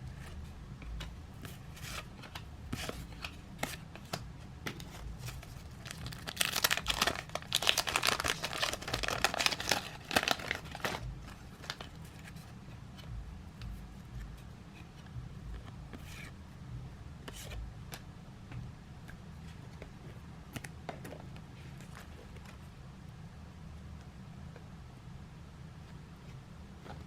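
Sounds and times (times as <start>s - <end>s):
wrapper crinkling and tearing: 5.3s - 11.0s.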